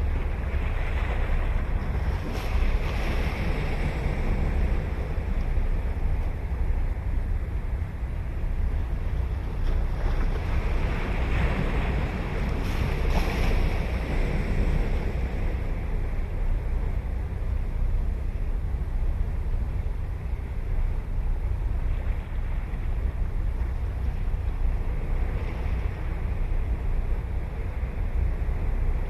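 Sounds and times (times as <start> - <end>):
wave breaking and washing in: 0.0 - 29.0
wind rumble on microphone: 0.0 - 29.0.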